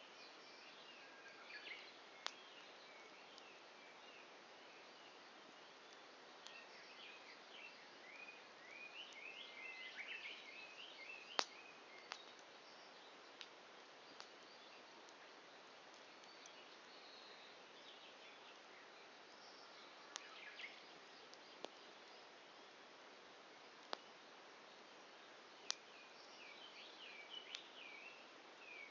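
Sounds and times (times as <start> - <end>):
birds chirping: 0.0 - 28.9
burning wood popping: 11.2 - 12.5, 13.3 - 14.4, 23.8 - 24.1, 25.6 - 25.9.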